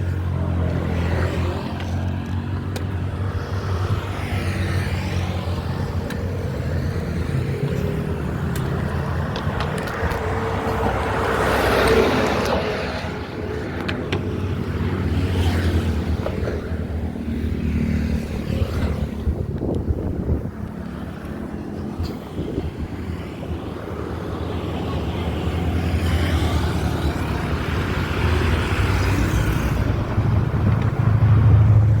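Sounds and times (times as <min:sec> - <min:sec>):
road noise: 0:00.0 - 0:32.0
vehicle engine hum: 0:00.0 - 0:32.0.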